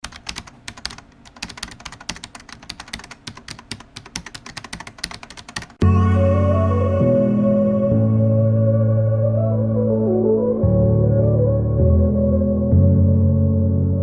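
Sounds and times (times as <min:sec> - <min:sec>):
keyboard typing clicks: 0:00.0 - 0:05.8
music with keyboard chords: 0:05.8 - 0:14.0.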